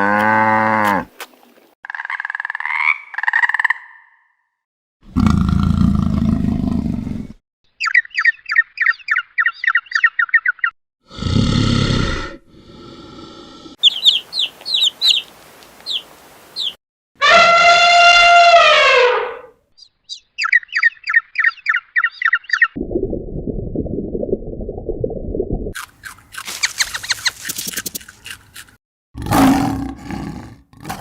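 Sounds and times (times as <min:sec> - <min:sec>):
bird chirps: 0:07.7 - 0:10.8, 0:13.8 - 0:16.8, 0:19.8 - 0:22.8, 0:26.5 - 0:27.5.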